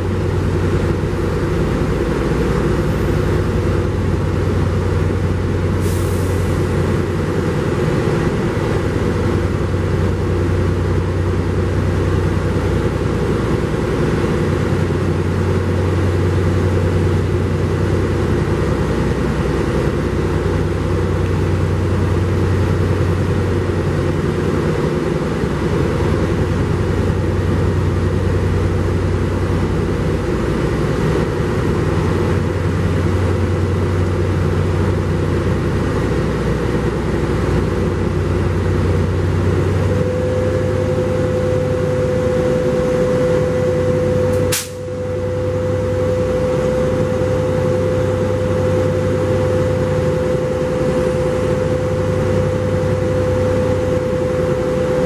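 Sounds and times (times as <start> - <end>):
train engine drone: 0.0 - 55.0
train wheel noise: 0.0 - 55.0
steady mid-pitched tone: 39.5 - 55.0
sharp click: 44.3 - 44.8.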